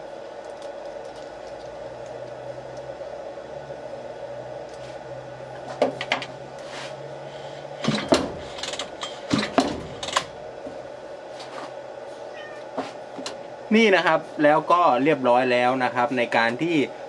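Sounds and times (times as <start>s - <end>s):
steady background hum: 0.0s - 17.0s
mechanical clicks and rattles: 7.8s - 10.6s.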